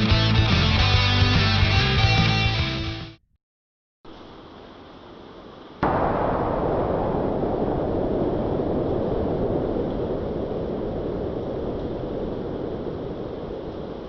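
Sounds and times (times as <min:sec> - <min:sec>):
wind and sea rushing: 0:05.8 - 0:14.0.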